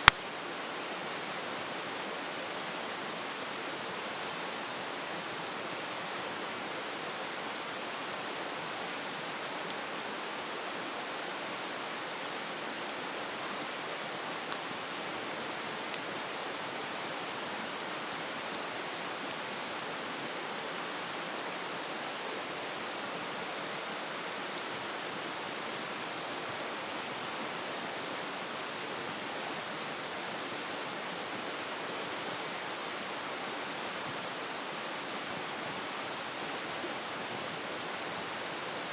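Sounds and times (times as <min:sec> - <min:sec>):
fire crackling pops: 0:00.0 - 0:00.2.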